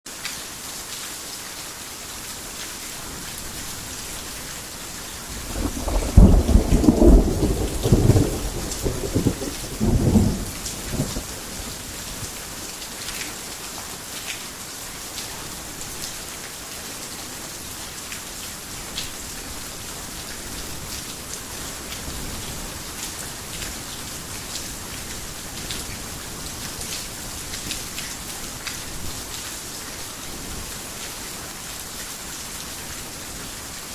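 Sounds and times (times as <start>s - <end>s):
heavy rain falling: 0.1s - 33.9s
thunder rumbling: 5.4s - 11.8s.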